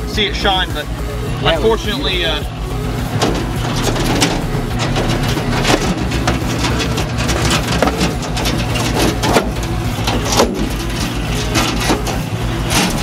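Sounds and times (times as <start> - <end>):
engine humming: 0.0 - 13.0
knocks and clatters: 3.1 - 13.0.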